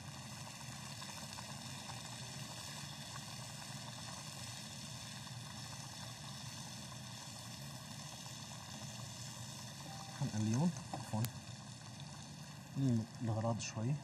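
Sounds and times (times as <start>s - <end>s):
food sizzling in frying pan: 0.0s - 14.0s
low hum: 9.8s - 11.4s.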